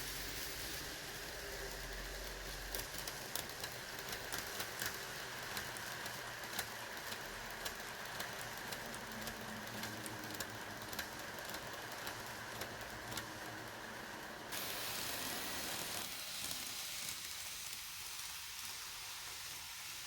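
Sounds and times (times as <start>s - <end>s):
model train wheels and motor: 0.0s - 20.0s
wheels clicking over rail joints: 2.7s - 14.5s.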